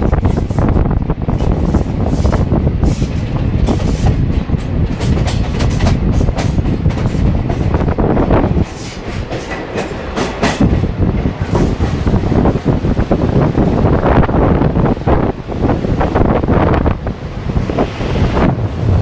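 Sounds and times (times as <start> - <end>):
vehicle rumbling: 10.8 - 19.0.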